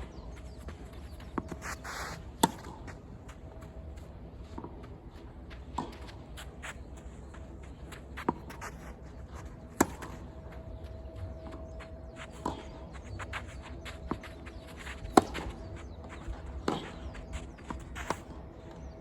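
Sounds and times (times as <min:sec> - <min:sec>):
tennis ball hits: 0:02.4 - 0:03.1, 0:09.6 - 0:11.0, 0:15.1 - 0:15.7.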